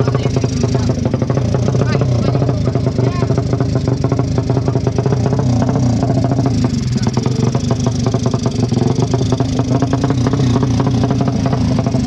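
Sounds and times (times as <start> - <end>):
motorcycle engines idling roughly: 0.0 - 12.0.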